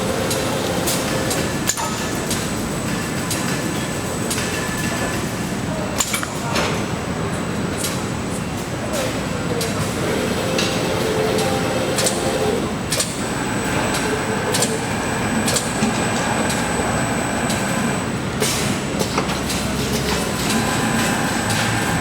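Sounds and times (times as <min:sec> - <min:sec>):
sharp clicks and clacks: 0:00.2 - 0:05.2
machinery mechanical din: 0:09.7 - 0:22.0.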